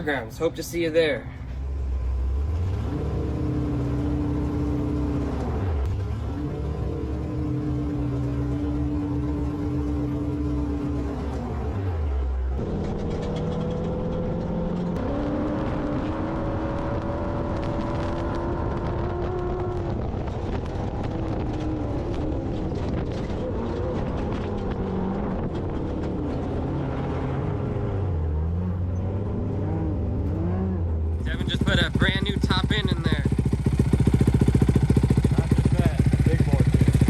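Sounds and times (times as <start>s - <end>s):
constant rumble: 0.0s - 37.0s
vehicle engines revving: 0.0s - 37.0s.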